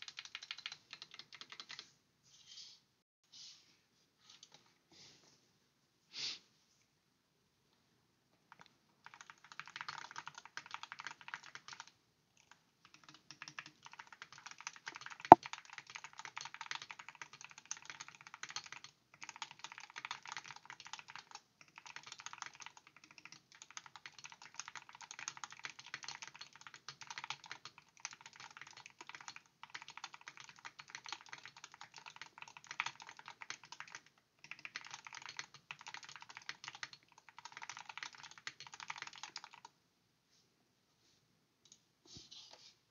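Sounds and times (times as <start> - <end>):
fast keyboard typing: 0.0 - 1.9, 8.5 - 39.8.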